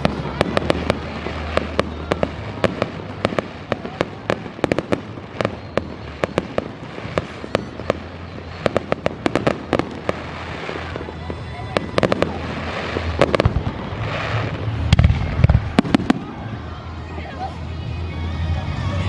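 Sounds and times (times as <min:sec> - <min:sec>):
fireworks popping and crackling: 0:00.0 - 0:18.8.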